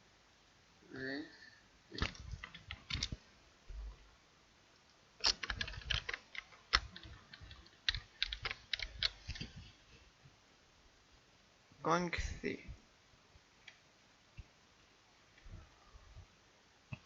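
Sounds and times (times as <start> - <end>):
computer keyboard keys clicking: 2.0 - 3.2, 5.2 - 9.5.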